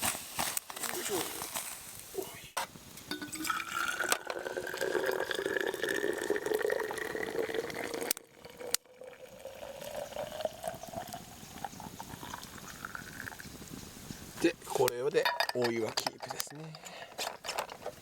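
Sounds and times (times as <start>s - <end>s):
water pouring into container: 3.1s - 13.4s.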